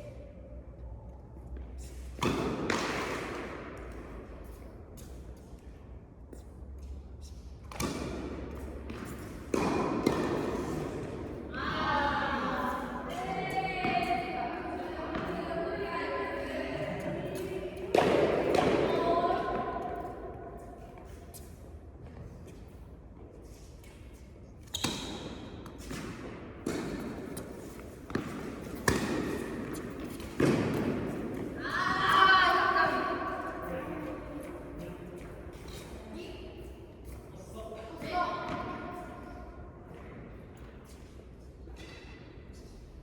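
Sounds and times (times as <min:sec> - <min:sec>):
tennis ball impacts: 0:07.7 - 0:11.4, 0:24.9 - 0:31.6.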